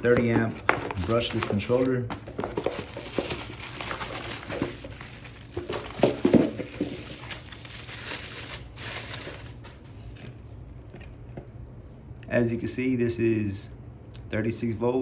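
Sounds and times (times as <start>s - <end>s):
packaging rustling and crinkling: 0.0s - 11.1s.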